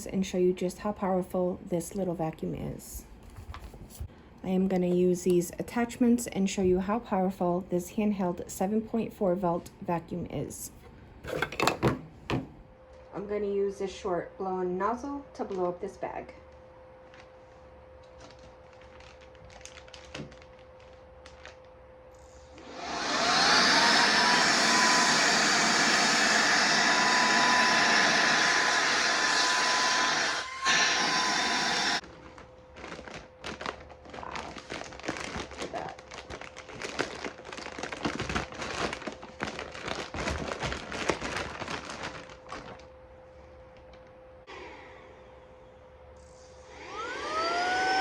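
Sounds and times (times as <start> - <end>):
bag crinkling: 18.1 - 21.7, 32.0 - 42.9
vacuum motor whine: 22.2 - 32.0, 43.7 - 48.0.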